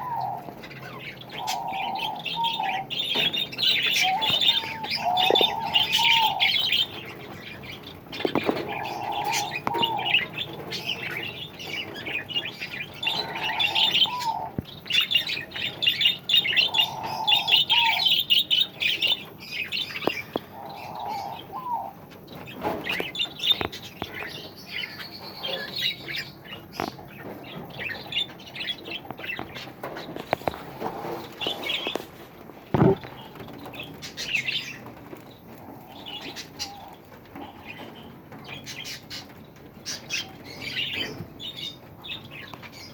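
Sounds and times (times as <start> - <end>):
cage birds chattering and chirping: 0.0 - 42.9
light knocks: 32.7 - 33.1.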